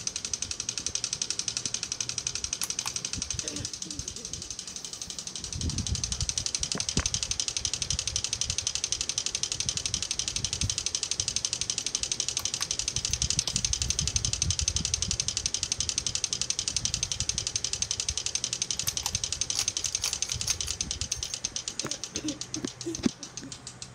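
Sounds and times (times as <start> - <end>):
ceiling fan motor rumble: 0.0 - 23.9
rapid even ticking: 0.0 - 23.9.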